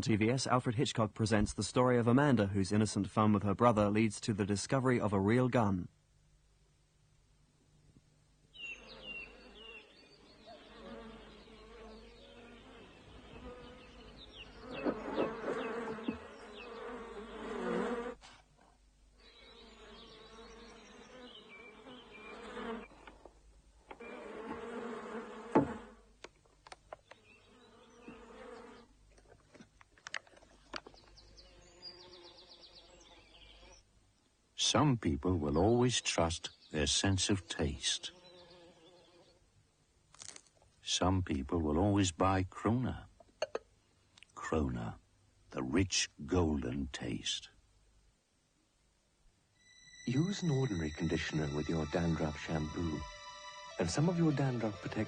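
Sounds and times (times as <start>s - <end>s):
insect buzzing: 8.6s - 18.2s, 19.2s - 23.2s, 23.9s - 26.2s, 27.0s - 28.9s, 31.2s - 33.8s, 38.0s - 39.4s, 49.5s - 55.0s.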